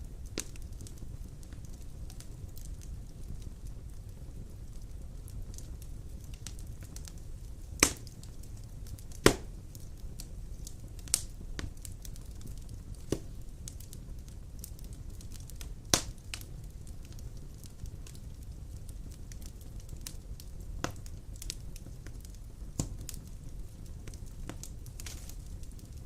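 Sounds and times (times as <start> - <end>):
low rumble of fire: 0.0 - 26.0
small crackles of fire: 0.0 - 26.0
sharp pops of logs: 7.8 - 8.1, 9.2 - 9.5, 13.1 - 13.3, 15.9 - 16.2, 22.8 - 23.0.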